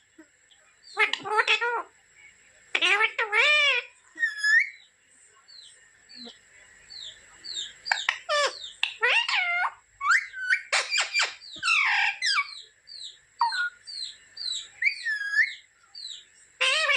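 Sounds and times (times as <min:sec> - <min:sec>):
parrot chirping: 0:00.8 - 0:01.9, 0:02.7 - 0:04.9, 0:06.9 - 0:16.9
parrot squawking: 0:00.9 - 0:01.9, 0:02.8 - 0:04.8, 0:07.0 - 0:16.9.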